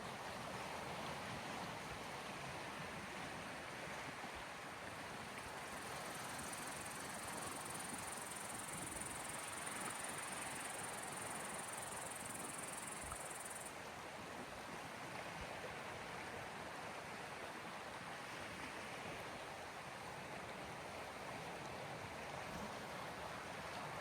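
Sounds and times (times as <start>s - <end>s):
faint high hiss: 5.5s - 13.8s.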